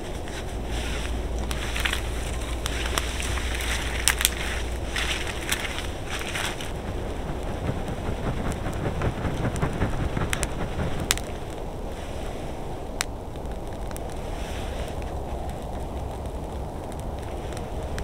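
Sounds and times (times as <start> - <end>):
sharp cracks: 0.0 - 18.0
wind on microphone: 0.0 - 18.0.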